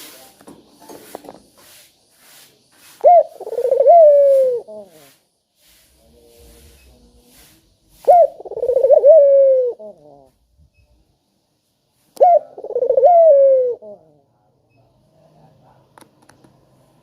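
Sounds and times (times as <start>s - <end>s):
dove cooing: 3.0s - 5.1s, 8.0s - 10.4s, 12.2s - 14.3s.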